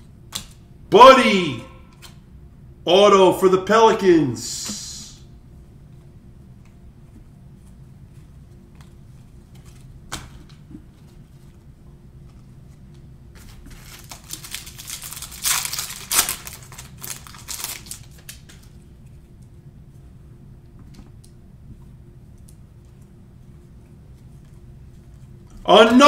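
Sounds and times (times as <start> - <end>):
wrapper tearing and crinkling: 13.4 - 18.7.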